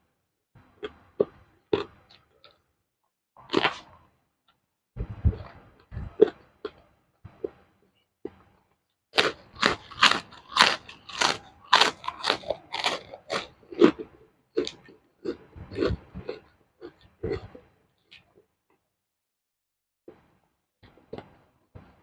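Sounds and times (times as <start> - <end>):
crunchy chewing of raw vegetables: 0.6 - 2.6, 3.4 - 4.1, 5.2 - 7.7, 9.2 - 18.4.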